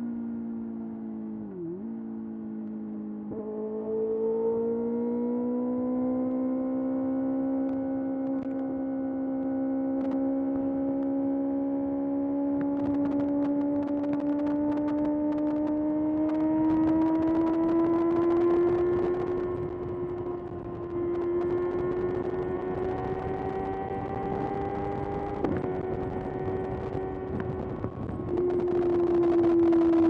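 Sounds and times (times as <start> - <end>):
motorcycle engine running: 9.5 - 30.0.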